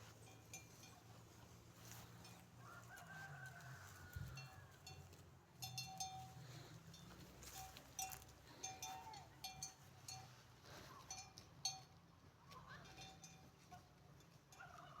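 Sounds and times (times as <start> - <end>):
sheep bells clinking: 0.0 - 15.0
rooster crowing: 2.6 - 4.9.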